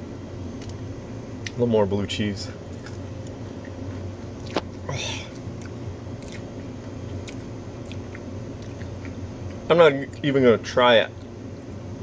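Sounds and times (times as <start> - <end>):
steady low hum: 0.0 - 12.0
person chewing food: 2.7 - 10.3.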